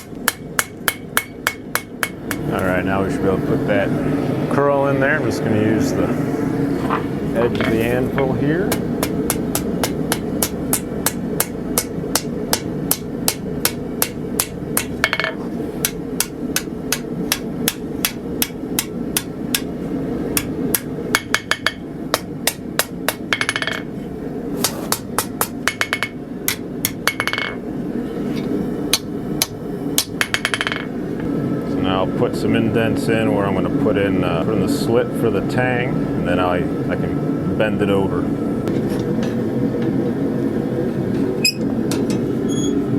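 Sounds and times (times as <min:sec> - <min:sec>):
hammer striking hot steel on anvil: 0:00.0 - 0:02.6, 0:07.6 - 0:19.7, 0:20.3 - 0:23.9, 0:24.6 - 0:27.6, 0:28.9 - 0:30.9.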